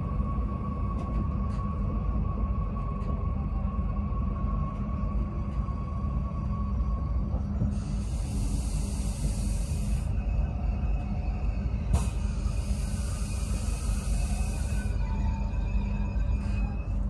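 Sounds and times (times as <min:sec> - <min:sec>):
train rumble from inside carriage: 0:00.0 - 0:17.0
hiss: 0:07.7 - 0:10.2, 0:11.9 - 0:15.0.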